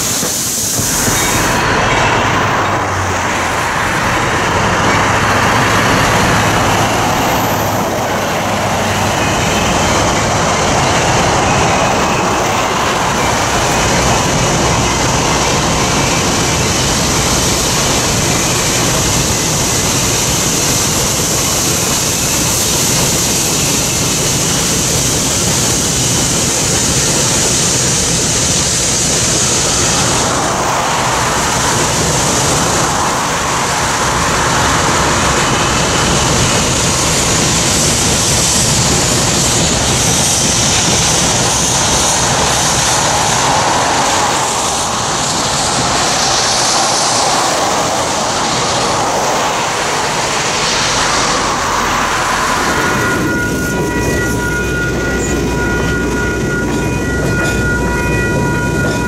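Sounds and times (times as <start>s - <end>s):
train rolling across a steel bridge: 0.0s - 59.0s
high-pitched wheel squeal: 29.1s - 59.0s.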